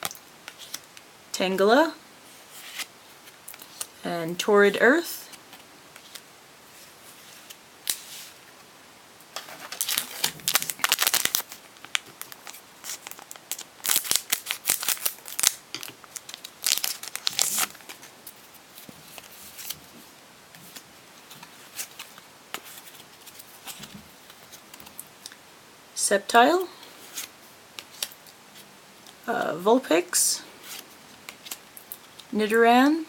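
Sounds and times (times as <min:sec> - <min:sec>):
foil wrapper tearing and crinkling: 0:09.5 - 0:18.1.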